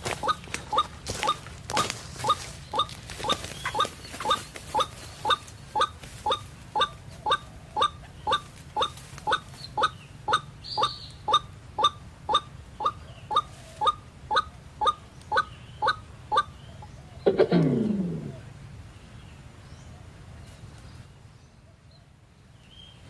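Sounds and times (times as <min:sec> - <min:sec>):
lower falling bird call: 0:00.0 - 0:14.0
waterhen rising calls: 0:00.0 - 0:16.5.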